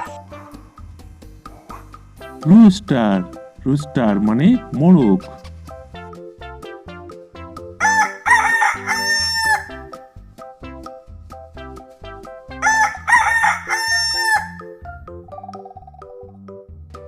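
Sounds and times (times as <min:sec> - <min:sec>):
background music with beat: 0:00.0 - 0:17.0
rooster crowing: 0:07.8 - 0:09.9, 0:12.6 - 0:14.7.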